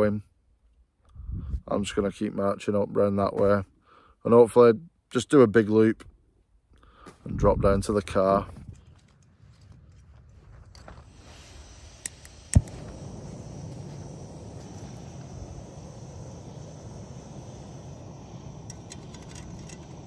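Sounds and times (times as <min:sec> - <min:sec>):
gas burner hissing: 0:10.9 - 0:20.0
gas burner pop: 0:11.9 - 0:20.0
gas stove igniter click: 0:12.0 - 0:13.2, 0:18.2 - 0:20.0.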